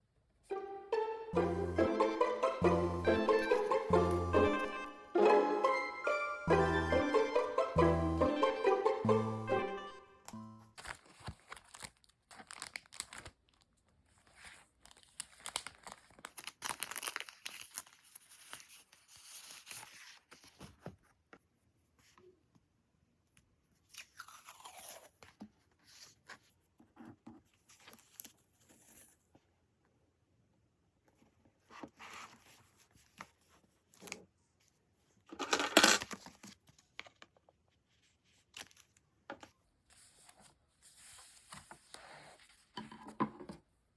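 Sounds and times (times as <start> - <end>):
paper crinkling and rustling: 10.7 - 21.2, 27.5 - 29.3, 35.2 - 42.9.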